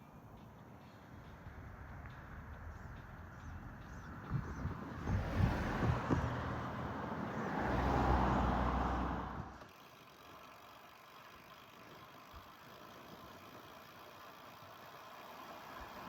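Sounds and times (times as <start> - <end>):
vehicle passing: 1.2 - 9.6.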